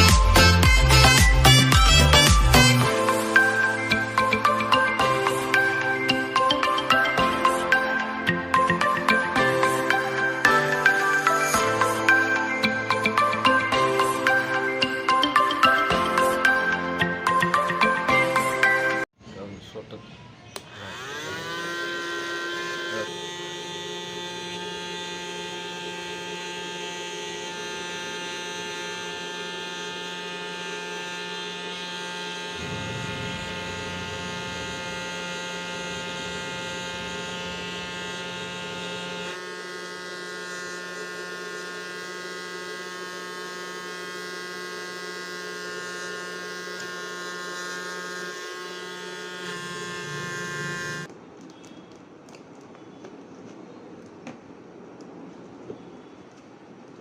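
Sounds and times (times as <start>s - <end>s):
small motor buzzing whine: 20.6s - 51.7s.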